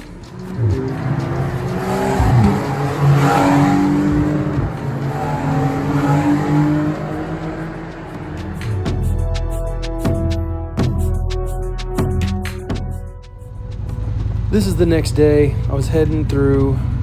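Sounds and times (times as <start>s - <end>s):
race car engines: 0.0s - 9.5s, 13.3s - 17.0s.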